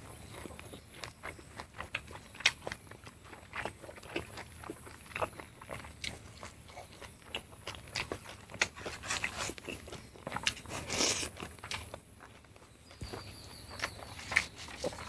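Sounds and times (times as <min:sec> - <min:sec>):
person chewing and crunching: 0:00.0 - 0:15.0.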